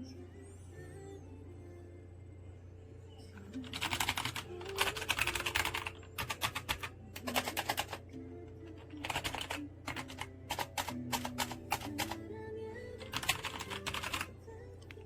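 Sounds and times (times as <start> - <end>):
soft background music: 0.0 - 15.0
mechanical keyboard typing: 3.6 - 8.0, 8.7 - 12.2, 13.0 - 14.3.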